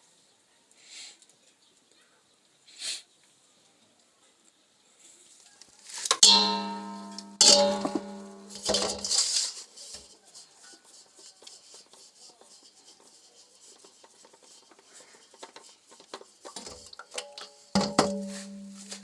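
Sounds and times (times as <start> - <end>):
sharp metal clinks: 6.2 - 9.1.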